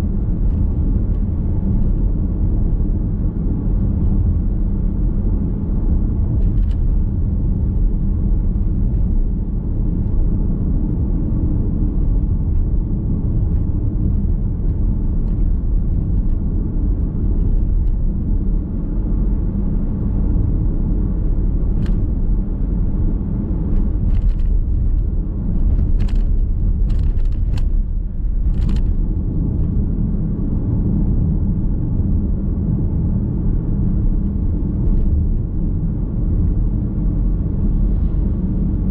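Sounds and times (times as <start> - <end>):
car interior road rumble: 0.0 - 38.9.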